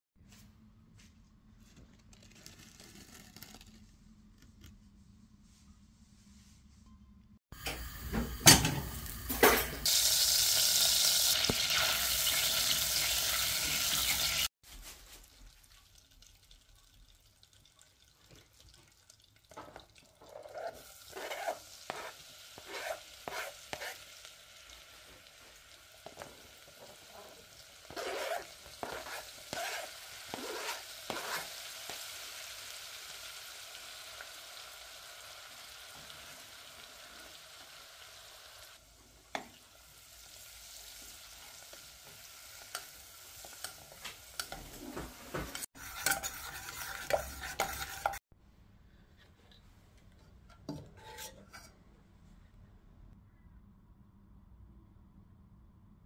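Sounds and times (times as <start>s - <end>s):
butter and garlic sizzling in a pan: 7.8s - 14.5s, 20.6s - 48.2s.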